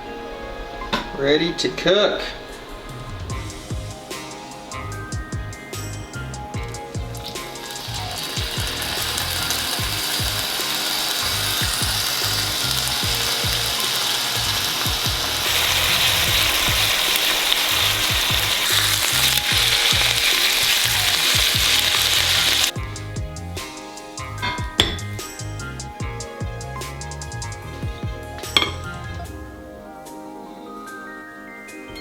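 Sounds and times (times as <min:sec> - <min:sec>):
background music with low beat: 0:00.0 - 0:32.0
fish sizzling in a hot pan: 0:07.1 - 0:22.7.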